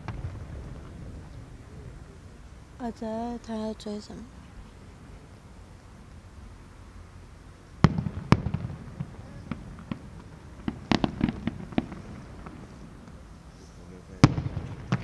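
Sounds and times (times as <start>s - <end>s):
fireworks cracks and pops: 0.0s - 1.6s, 7.8s - 13.3s, 14.1s - 15.0s
distant fireworks booming: 0.0s - 15.0s.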